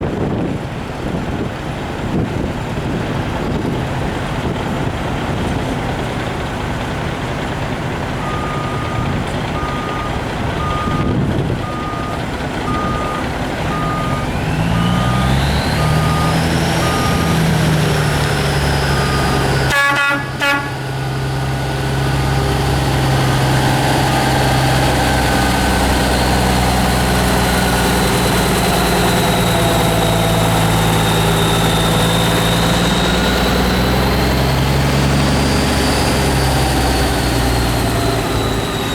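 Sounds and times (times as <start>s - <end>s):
diesel truck engine starting and idling: 0.0s - 38.9s
steady warning beep: 8.2s - 17.5s, 18.7s - 19.6s
truck horn toot: 18.5s - 21.3s.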